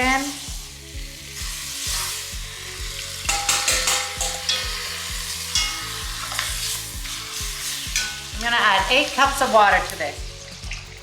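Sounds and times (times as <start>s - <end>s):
food sizzling in hot oil: 0.0s - 11.0s
utensil clicking against pot: 3.2s - 4.7s.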